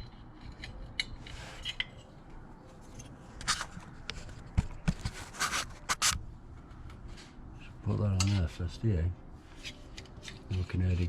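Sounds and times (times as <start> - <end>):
metal parts scraping and clinking: 0.0 - 2.2.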